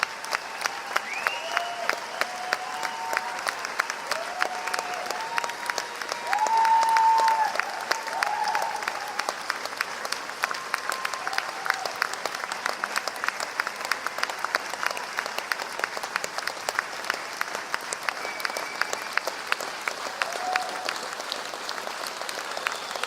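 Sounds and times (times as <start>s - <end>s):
audience applauding: 0.0s - 23.0s
short whistles: 1.1s - 1.7s, 18.1s - 19.4s.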